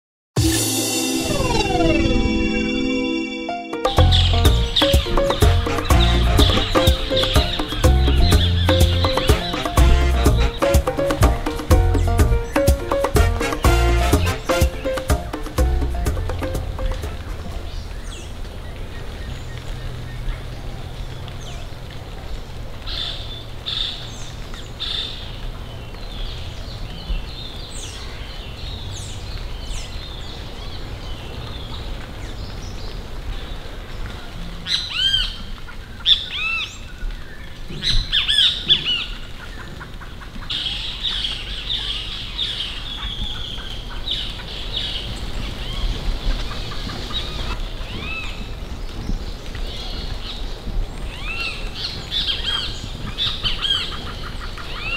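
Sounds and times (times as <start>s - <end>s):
birds calling: 3.8s - 21.6s, 34.6s - 54.9s.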